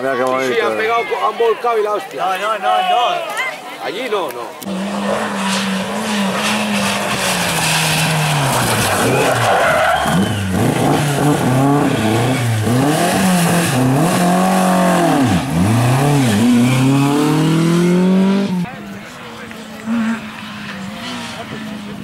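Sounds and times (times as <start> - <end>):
rally car engine revving: 4.6 - 22.0.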